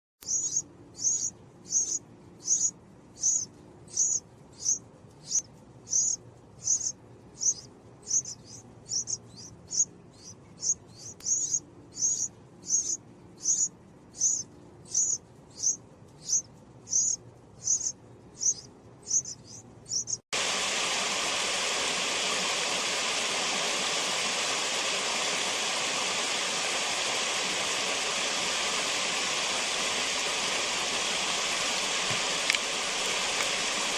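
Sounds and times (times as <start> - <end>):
hummingbird call notes: 0.2 - 20.2
steady rushing hiss: 0.3 - 33.9.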